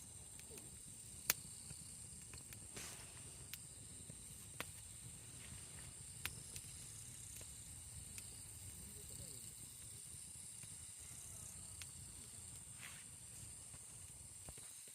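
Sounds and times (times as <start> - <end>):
campfire crackling: 0.0 - 14.9
faint steady hiss: 0.0 - 14.9.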